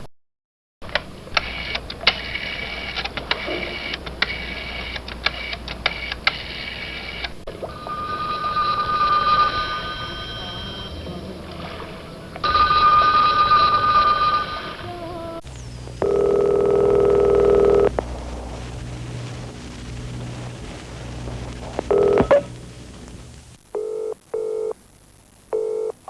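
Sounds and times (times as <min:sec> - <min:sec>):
telephone bell ringing: 0:07.6 - 0:15.1, 0:16.0 - 0:17.9, 0:21.9 - 0:22.5.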